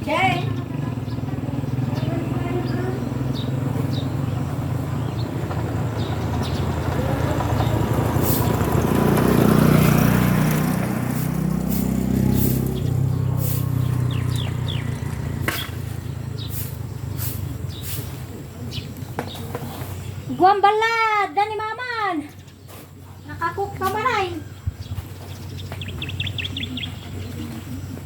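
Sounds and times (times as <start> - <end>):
motor engine running: 0.0 - 19.9.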